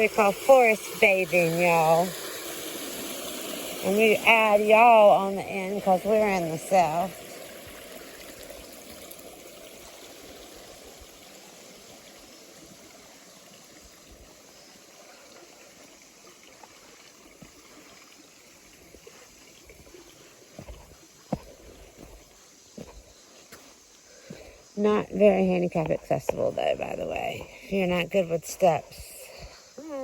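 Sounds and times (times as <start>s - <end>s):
waterfall trickling: 0.0s - 22.6s.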